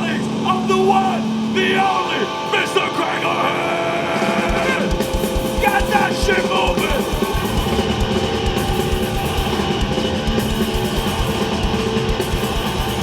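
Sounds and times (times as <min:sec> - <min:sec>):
distorted electric guitars: 0:00.0 - 0:13.0
fast pounding drums: 0:04.1 - 0:13.0.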